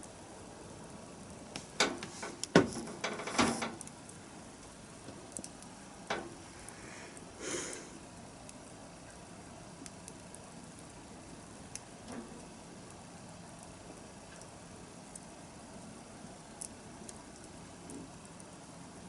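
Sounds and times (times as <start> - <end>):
bonfire crackling: 0.0 - 19.0
soft hiss: 0.0 - 19.0
sharp pops and cracks: 1.4 - 6.4, 11.6 - 13.0, 13.6 - 15.3.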